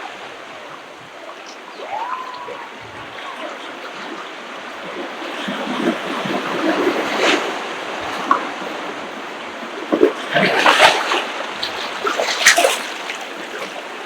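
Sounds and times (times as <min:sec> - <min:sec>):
ocean waves washing onto beach: 0:00.0 - 0:14.0
wave splash: 0:00.0 - 0:14.0
whistle-like glide: 0:01.4 - 0:04.3.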